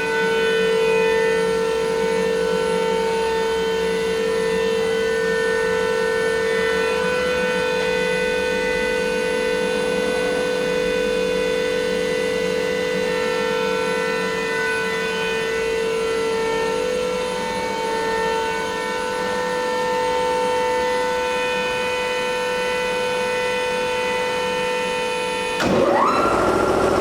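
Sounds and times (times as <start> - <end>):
machine spindle whine: 25.5 - 27.0.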